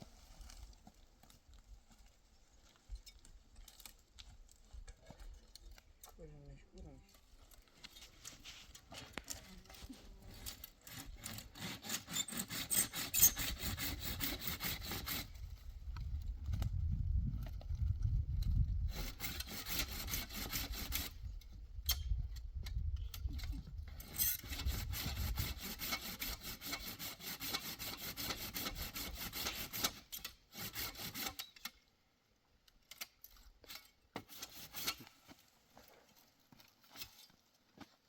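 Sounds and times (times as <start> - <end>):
handsaw cutting wood: 10.5 - 15.4, 18.9 - 21.2, 23.9 - 31.5, 34.2 - 35.0.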